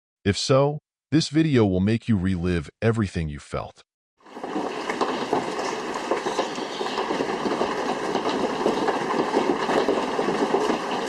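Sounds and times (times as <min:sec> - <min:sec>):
hailstones clattering: 0:04.2 - 0:11.0.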